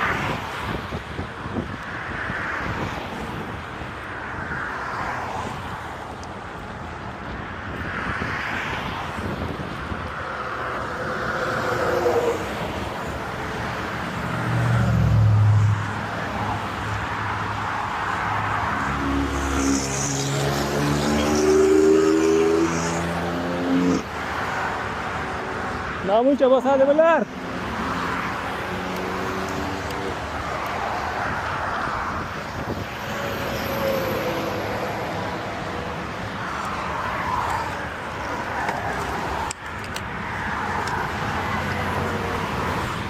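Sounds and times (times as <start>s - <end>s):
motor vehicles running: 0.0s - 43.0s.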